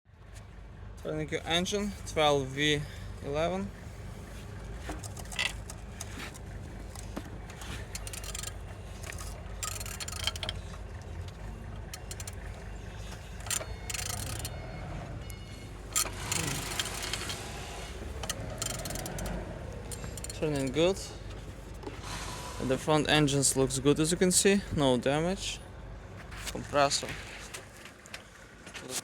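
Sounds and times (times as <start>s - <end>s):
low background rumble: 0.2s - 28.6s
metallic scraping and clicking: 4.9s - 22.0s.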